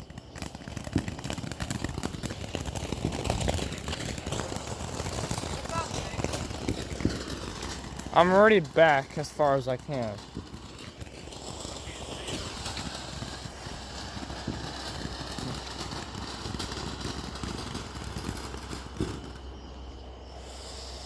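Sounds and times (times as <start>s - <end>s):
faint hiss: 20.2s - 21.0s.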